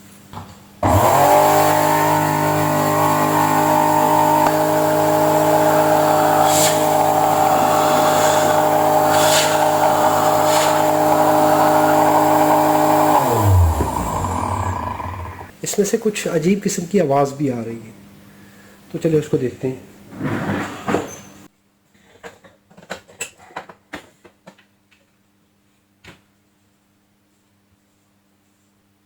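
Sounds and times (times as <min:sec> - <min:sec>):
vacuum cleaner motor whining: 0:00.8 - 0:15.5.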